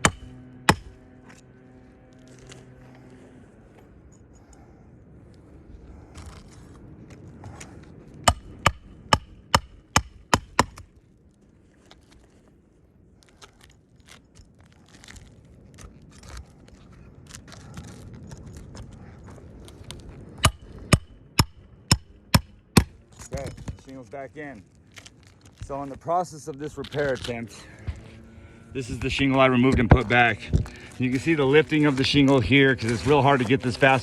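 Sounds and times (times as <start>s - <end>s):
hammer striking roofing nail: 0.0s - 1.0s, 8.2s - 10.9s, 20.4s - 23.0s.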